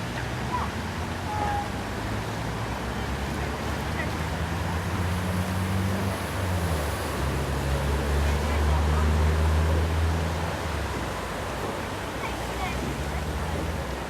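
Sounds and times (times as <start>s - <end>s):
motorboat engine humming: 0.0s - 14.0s
water noise: 0.0s - 14.0s
wind: 0.0s - 14.0s.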